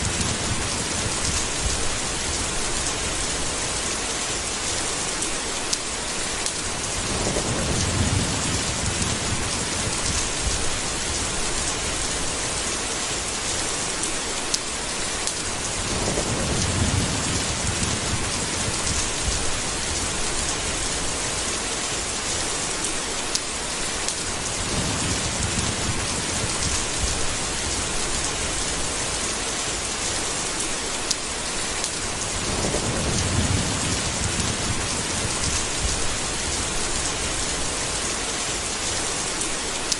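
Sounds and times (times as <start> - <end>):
thunder rumbling: 0.0 - 3.9, 6.7 - 12.7, 15.5 - 21.6, 24.3 - 29.4, 32.0 - 38.0
steady rain falling: 0.0 - 39.9.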